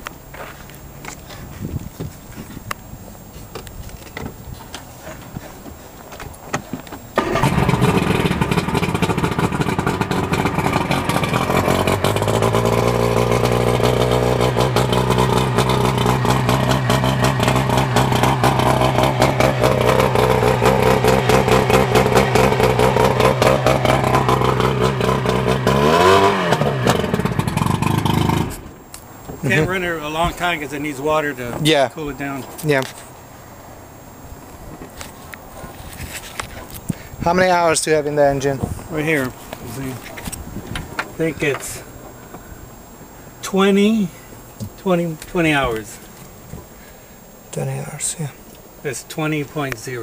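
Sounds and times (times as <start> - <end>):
boat engine starting and idling: 7.0 - 31.2
boat engine revving: 7.2 - 31.4.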